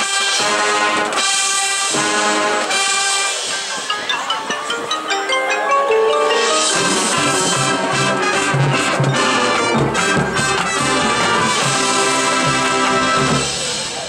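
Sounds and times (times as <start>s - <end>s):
brass: 0.0s - 4.4s, 5.9s - 14.0s
drums: 0.0s - 14.0s
mallet percussion ringing: 3.4s - 11.0s.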